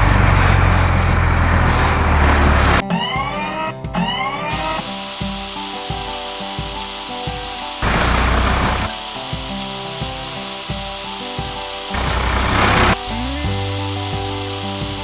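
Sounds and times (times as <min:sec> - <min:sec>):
cartoon music with steady beat: 0:02.8 - 0:15.0
hydraulic breaker hammering: 0:04.5 - 0:09.1, 0:10.0 - 0:13.0.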